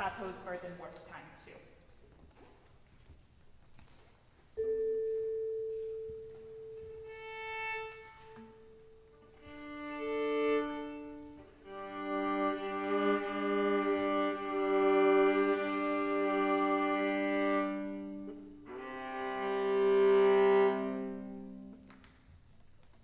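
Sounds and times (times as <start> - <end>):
viola: 4.6 - 23.0.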